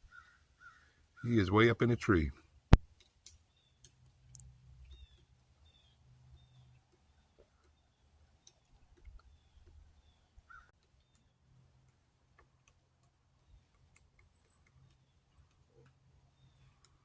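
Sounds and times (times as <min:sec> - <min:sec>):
faint ticks: 0:02.8 - 0:05.3, 0:16.6 - 0:17.0.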